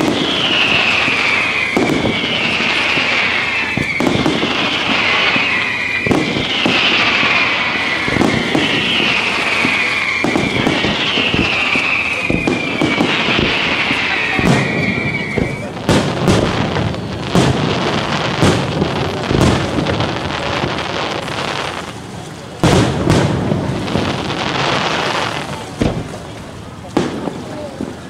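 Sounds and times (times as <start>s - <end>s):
descending whistling hiss: 0.0s - 15.8s
firework shells bursting: 0.0s - 27.5s.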